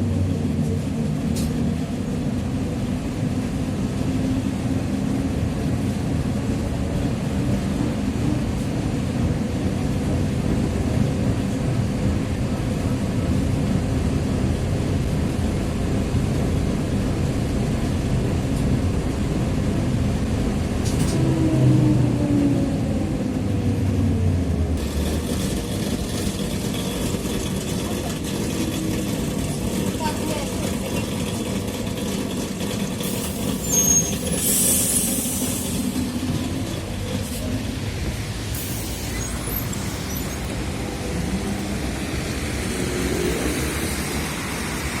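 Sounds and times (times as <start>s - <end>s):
trolleybus rumble: 0.0s - 45.0s
axle gear whine: 33.0s - 43.4s.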